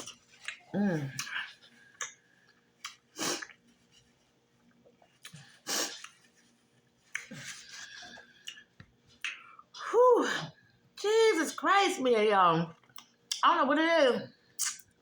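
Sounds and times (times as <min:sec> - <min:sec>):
mouth clicks: 0:14.6 - 0:14.9.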